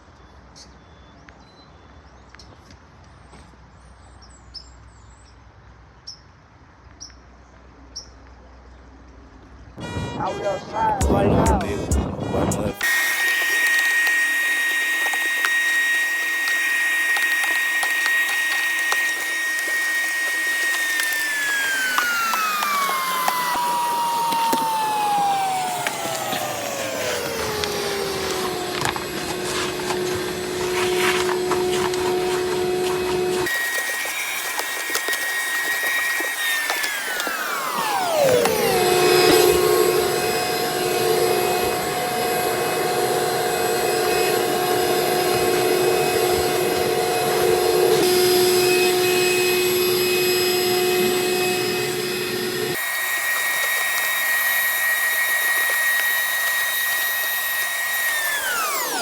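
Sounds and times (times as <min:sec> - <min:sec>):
vacuum cleaner running: 0:12.8 - 0:59.0.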